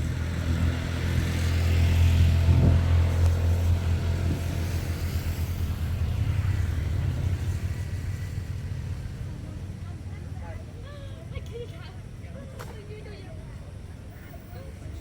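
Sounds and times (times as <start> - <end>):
vehicle engine humming: 0.0 - 10.4.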